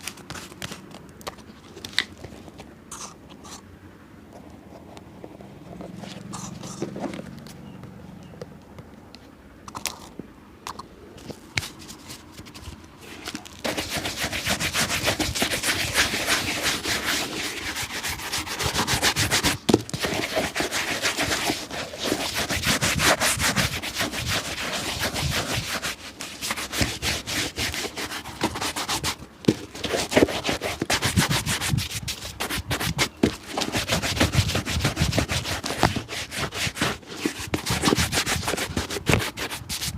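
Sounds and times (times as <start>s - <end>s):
shoe rubbed by hand: 5.3s - 7.2s, 11.4s - 39.9s.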